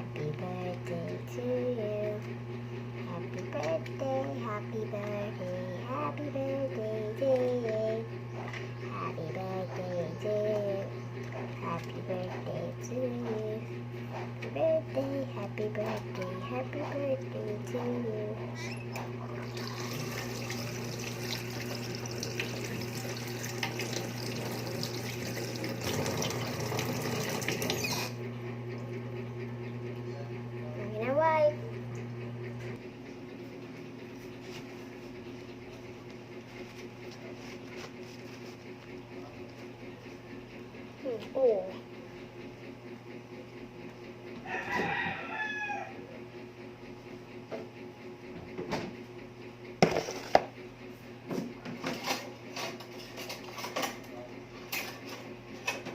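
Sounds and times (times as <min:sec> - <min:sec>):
steady low hum: 0:00.0 - 0:45.2
water running from a tap into a sink: 0:19.4 - 0:28.1.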